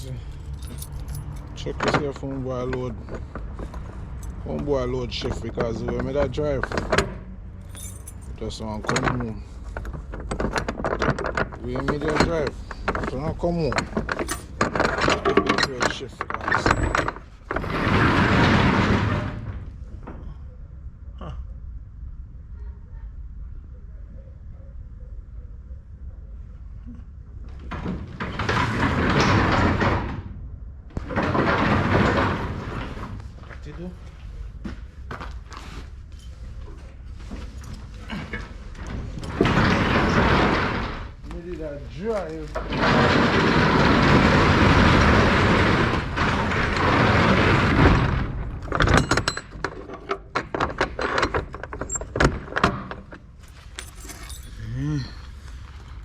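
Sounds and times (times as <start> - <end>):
clicks knocks and rattles: 0.5 - 20.2, 42.1 - 54.4
truck cargo door rattling: 31.0 - 33.2, 42.6 - 54.4.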